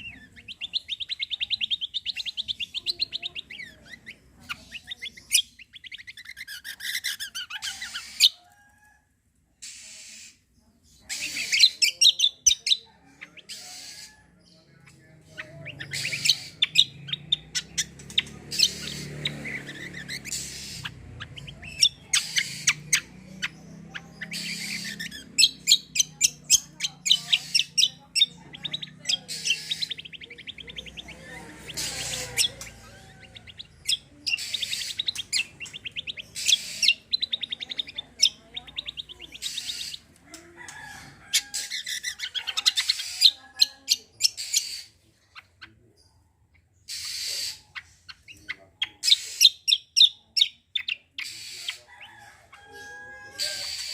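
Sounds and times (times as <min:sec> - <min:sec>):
songbird singing rattling bursts: 0:15.7 - 0:43.4.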